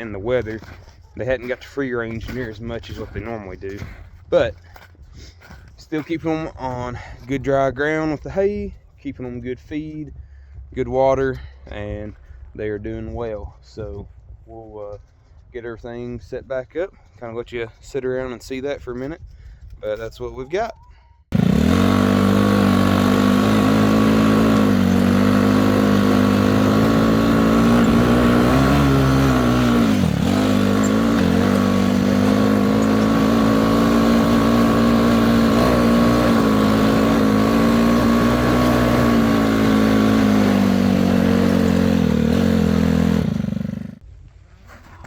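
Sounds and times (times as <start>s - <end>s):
tractor engine running: 21.3s - 44.0s.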